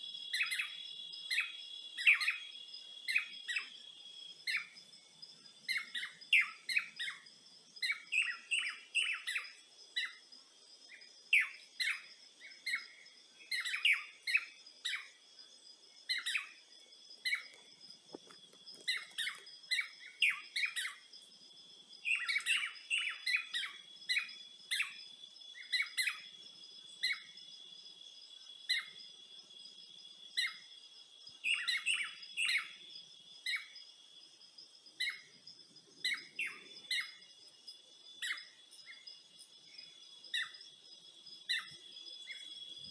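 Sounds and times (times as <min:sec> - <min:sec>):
high-pitched insect trill: 0:00.0 - 0:42.9
birds chirping: 0:35.0 - 0:42.9.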